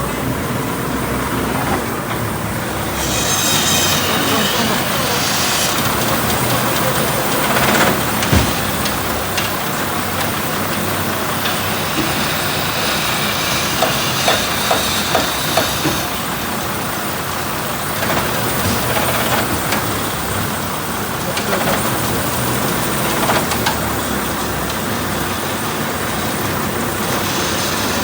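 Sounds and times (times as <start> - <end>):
heavy truck engine rumbling: 0.0 - 28.0
short knocks or rattles: 7.4 - 12.4.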